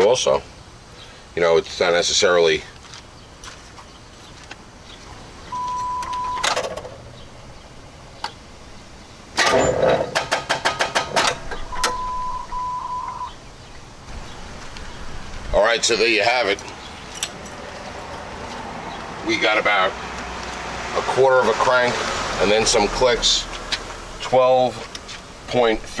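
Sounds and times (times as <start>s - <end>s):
steady beep tone: 5.5s - 6.6s, 11.7s - 13.4s.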